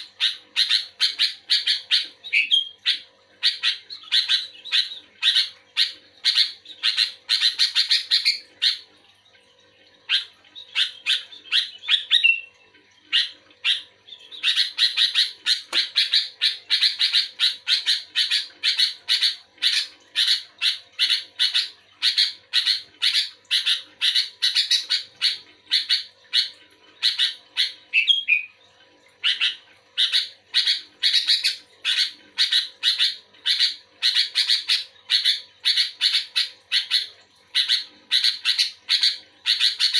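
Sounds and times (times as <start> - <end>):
bird chattering song: 0.0 - 8.9, 10.1 - 28.6, 29.2 - 39.9.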